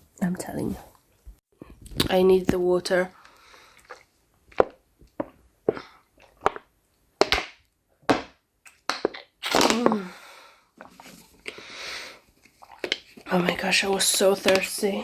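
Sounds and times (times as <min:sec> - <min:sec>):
person gulping water: 0:03.2 - 0:06.6, 0:09.0 - 0:10.2
breathy exhale: 0:11.5 - 0:12.2.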